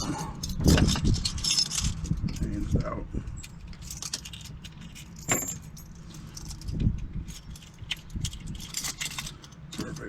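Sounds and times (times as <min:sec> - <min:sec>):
steady low rumble: 0:00.0 - 0:10.0
metal keys clinking: 0:03.4 - 0:10.0.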